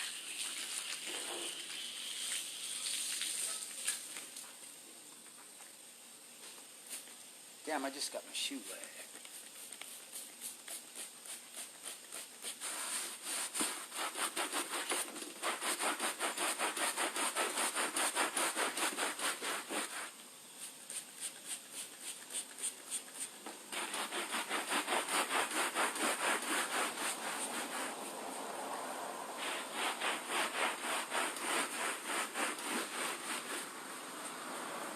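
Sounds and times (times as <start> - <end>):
brush scrubbing wet rubber mat: 8.6 - 28.5, 29.4 - 34.0.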